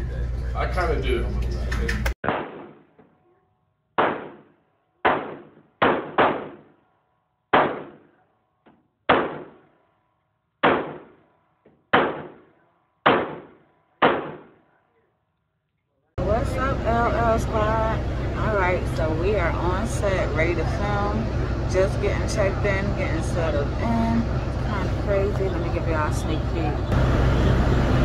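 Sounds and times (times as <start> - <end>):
handgun shots with echo: 2.2 - 2.9, 4.0 - 6.7, 7.5 - 8.1, 9.1 - 9.6, 10.6 - 11.2, 11.9 - 14.6.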